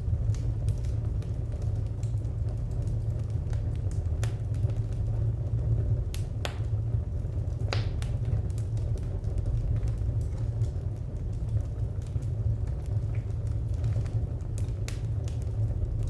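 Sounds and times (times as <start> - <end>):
wood fire crackling: 0.0 - 16.0
low rumble: 12.6 - 16.0.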